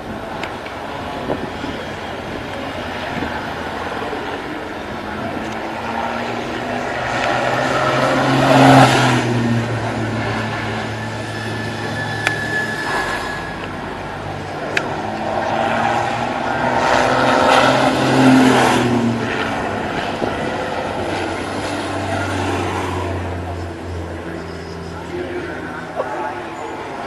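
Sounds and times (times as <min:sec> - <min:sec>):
outdoor background noise: 0:00.0 - 0:27.0
vehicle engine passing: 0:02.0 - 0:27.0.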